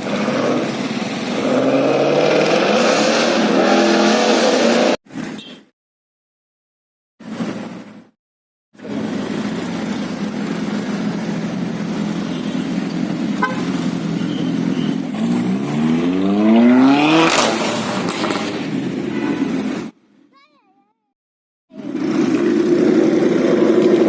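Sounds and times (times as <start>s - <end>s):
car engine accelerating: 0.0s - 5.0s, 8.8s - 19.5s, 21.7s - 24.0s.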